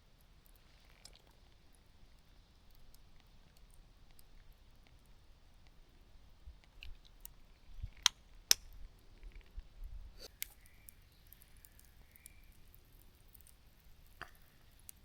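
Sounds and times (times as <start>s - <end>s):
small hard objects clicking: 10.2s - 15.0s.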